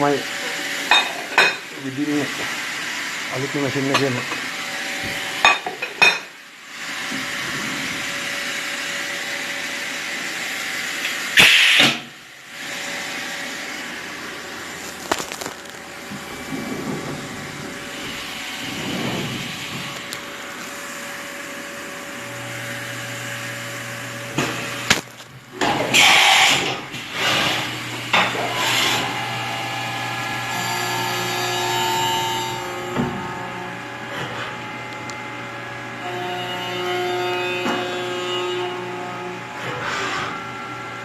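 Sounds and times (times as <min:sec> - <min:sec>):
machine whirring: 0:10.5 - 0:23.6.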